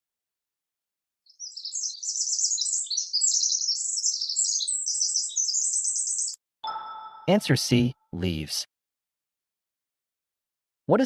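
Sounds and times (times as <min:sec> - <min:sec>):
bird twittering and chirping: 0:01.3 - 0:07.3.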